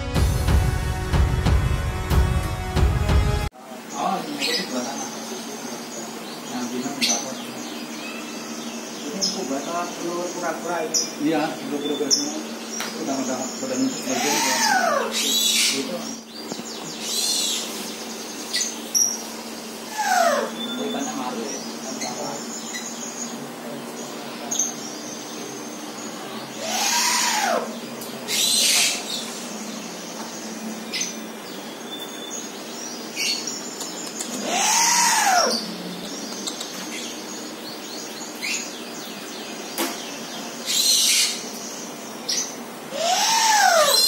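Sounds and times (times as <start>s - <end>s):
bird screeching: 13.6s - 16.3s, 18.5s - 22.9s, 26.1s - 29.3s, 34.3s - 35.8s, 40.7s - 41.5s, 42.3s - 44.0s
bird hissing rasps: 13.9s - 16.0s, 19.7s - 20.6s, 26.5s - 29.5s, 34.1s - 35.8s, 42.9s - 44.0s.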